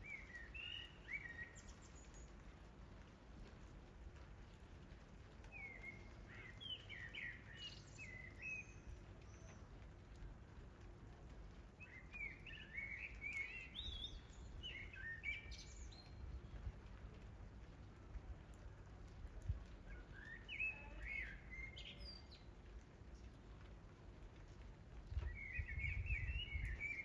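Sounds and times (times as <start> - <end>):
songbird chirping and warbling: 0.0 - 2.3, 5.5 - 9.7, 11.9 - 16.6, 19.8 - 23.4, 25.2 - 27.0.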